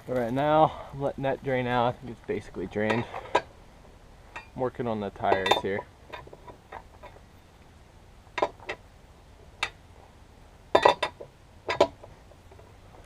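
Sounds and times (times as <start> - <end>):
tools clinking on metal: 5.2 - 6.4.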